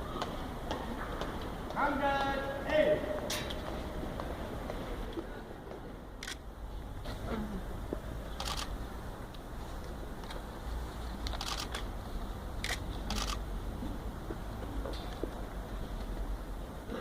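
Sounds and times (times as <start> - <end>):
camera shutters clicking: 6.2 - 6.4, 8.4 - 8.7, 11.2 - 11.9, 12.6 - 13.4.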